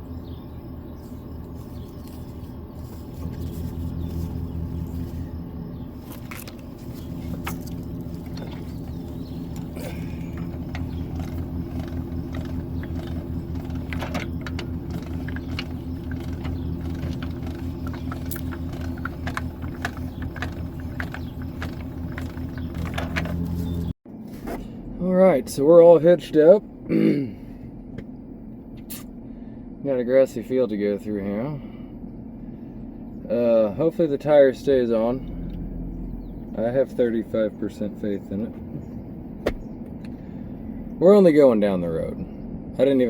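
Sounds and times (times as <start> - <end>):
truck engine idling: 0.0 - 24.0, 31.4 - 43.0
metal clicks and clanks: 9.5 - 23.5.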